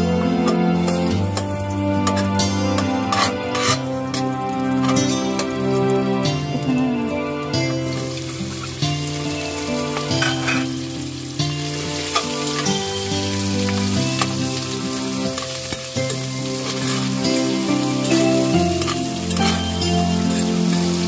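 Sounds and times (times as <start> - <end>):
meat sizzling in oil: 0.0 - 6.5, 7.2 - 21.0
background music with held notes: 0.0 - 21.0.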